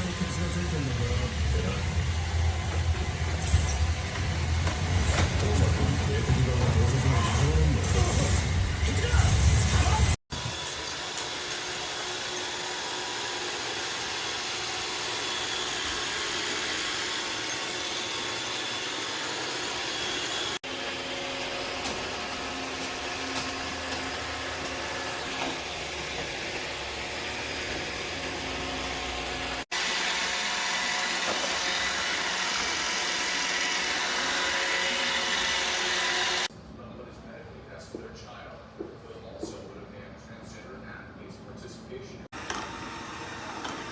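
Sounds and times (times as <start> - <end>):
robot vacuum whirring: 9.8 - 36.5, 42.4 - 43.9.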